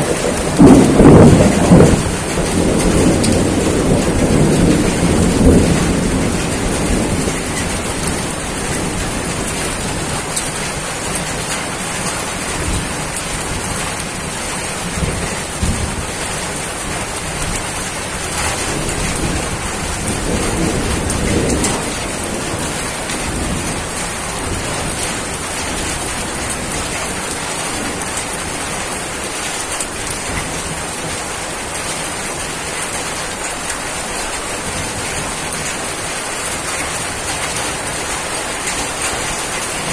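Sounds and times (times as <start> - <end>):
rolls of thunder: 0.0 - 10.1, 18.3 - 27.0
steady rain falling: 0.0 - 39.9.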